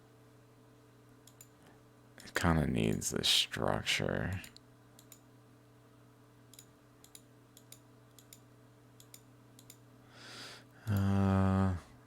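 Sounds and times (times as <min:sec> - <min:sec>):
low electrical hum: 0:00.0 - 0:12.0
computer mouse clicks: 0:01.2 - 0:01.7, 0:04.3 - 0:05.2, 0:06.5 - 0:09.8.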